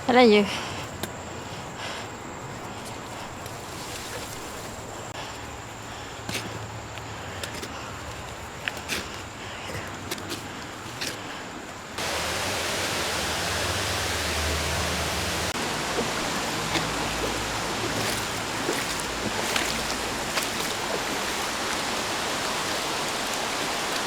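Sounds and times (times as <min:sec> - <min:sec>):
rushing falling water: 0:12.0 - 0:24.0.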